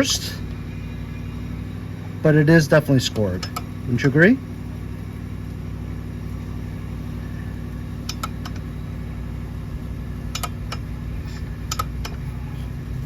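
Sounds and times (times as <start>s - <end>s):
low machine hum: 0.0s - 13.0s
light clicks: 8.0s - 8.7s, 10.3s - 12.2s.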